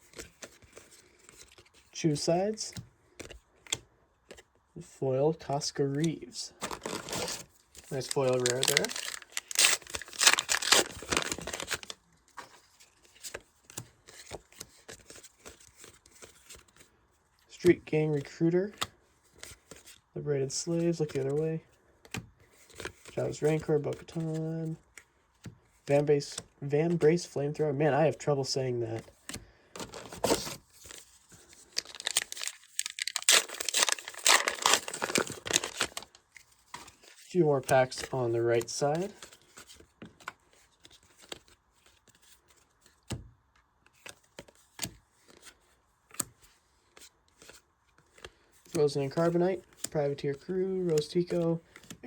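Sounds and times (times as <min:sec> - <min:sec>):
foil wrapper crinkling and tearing: 0:06.6 - 0:12.0, 0:29.8 - 0:36.2.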